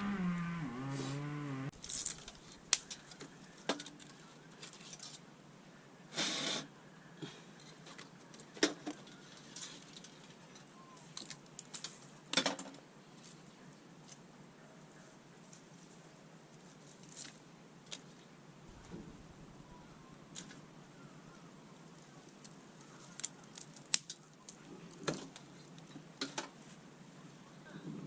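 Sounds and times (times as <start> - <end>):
wood fire crackling and popping: 1.8 - 4.2, 22.2 - 26.3.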